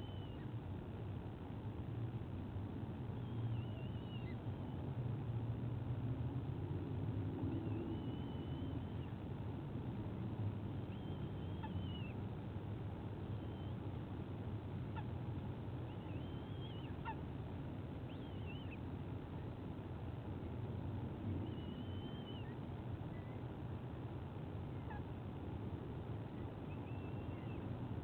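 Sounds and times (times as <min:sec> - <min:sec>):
low background rumble: 0:00.0 - 0:28.0
eagle chicks squealing: 0:03.3 - 0:04.4, 0:10.9 - 0:12.2, 0:15.9 - 0:17.2, 0:18.1 - 0:18.8, 0:21.4 - 0:23.4.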